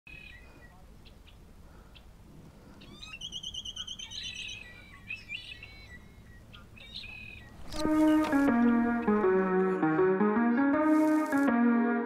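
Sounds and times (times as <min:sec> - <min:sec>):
songbird trilling: 0:00.1 - 0:01.4, 0:02.8 - 0:08.4
bird chirps: 0:00.1 - 0:02.1, 0:02.8 - 0:09.0.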